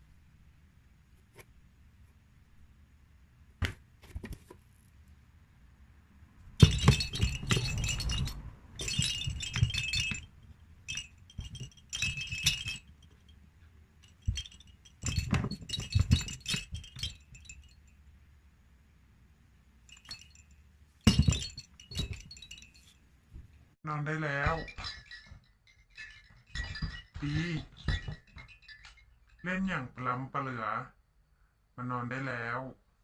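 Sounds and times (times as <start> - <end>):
toy thumping: 3.6 - 4.6, 6.6 - 13.3, 14.0 - 17.6, 21.0 - 23.6, 26.2 - 28.8
small bells jingling: 6.6 - 18.2, 19.8 - 30.0.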